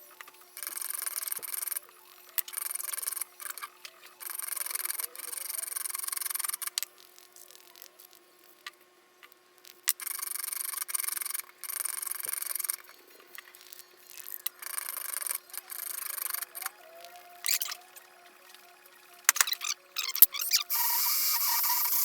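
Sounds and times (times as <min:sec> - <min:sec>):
harsh hissing rasp on metal: 0:20.7 - 0:22.0.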